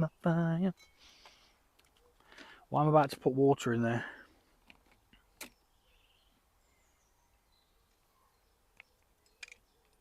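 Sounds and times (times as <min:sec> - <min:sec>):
faint birdsong: 0:00.0 - 0:10.0
sharp metal click: 0:08.8 - 0:10.0.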